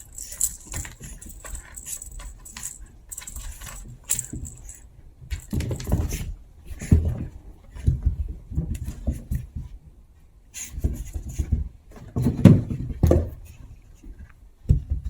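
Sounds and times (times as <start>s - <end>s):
puppies scuffling and bumping: 0.0s - 7.2s.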